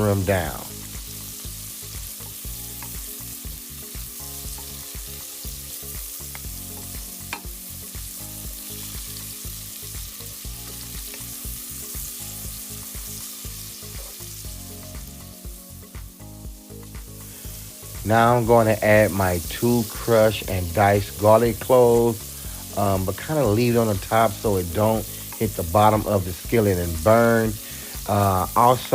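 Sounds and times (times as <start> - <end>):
vegetables sizzling in a skillet: 0.0 - 28.9
utensil clicking against pan: 6.3 - 7.5.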